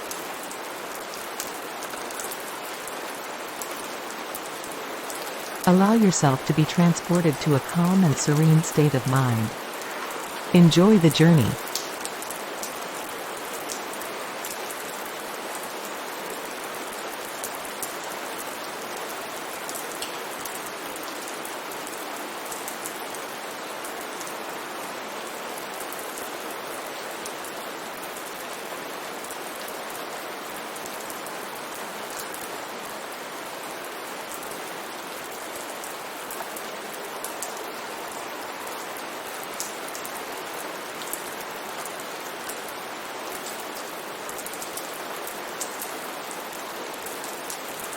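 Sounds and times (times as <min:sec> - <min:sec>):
steady rain hiss: 0:00.2 - 0:12.0.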